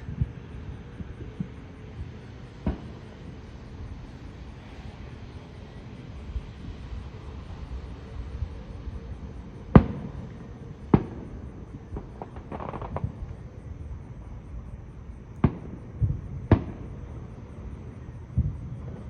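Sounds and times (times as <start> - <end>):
fireworks booming: 0.0 - 3.5, 4.5 - 14.4, 15.2 - 19.0
fireworks pops and crackle: 1.0 - 3.5, 9.7 - 13.5, 15.3 - 17.1.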